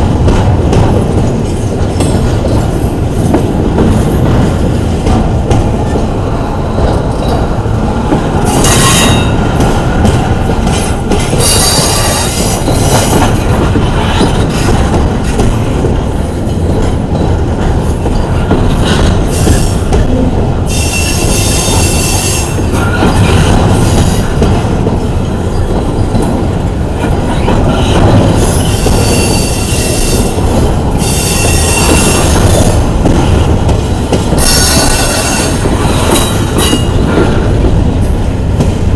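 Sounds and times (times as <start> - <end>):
freight train wheels rumbling: 0.0 - 38.9
wheels squealing on rail: 8.4 - 9.6, 10.8 - 14.8, 20.7 - 24.4, 27.3 - 30.4, 31.0 - 32.8, 34.4 - 37.3.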